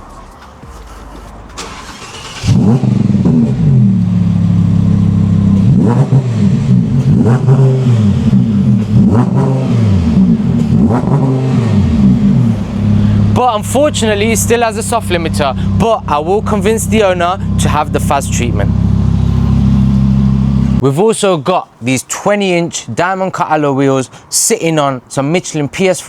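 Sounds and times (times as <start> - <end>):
sports car engine revving: 1.6 - 20.8.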